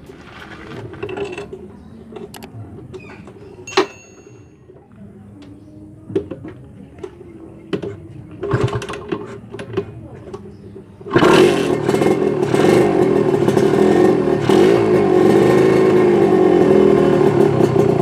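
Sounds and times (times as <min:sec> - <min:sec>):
engine clicks: 0:05.4 - 0:12.6
two-stroke engine idling: 0:07.7 - 0:18.0.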